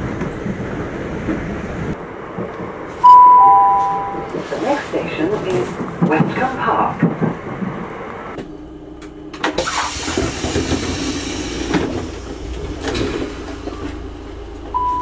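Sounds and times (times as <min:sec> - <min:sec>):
train carriage low rumble: 0:00.0 - 0:15.0
falling two-note chime: 0:03.1 - 0:04.3
air hissing: 0:09.6 - 0:13.8.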